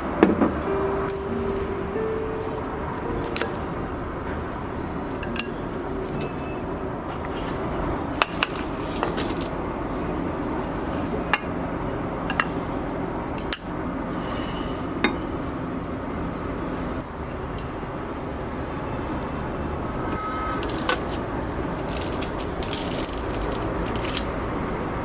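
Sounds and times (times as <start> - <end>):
steady background noise: 0.0 - 25.0
dishes and utensils clinking: 5.1 - 6.6.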